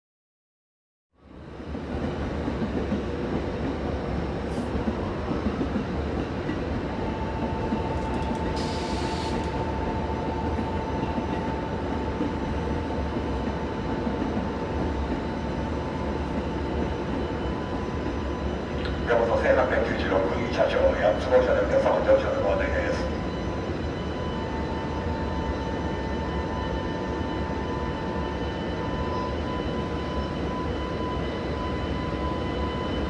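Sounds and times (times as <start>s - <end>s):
freight train rumbling on rails: 1.2s - 33.0s.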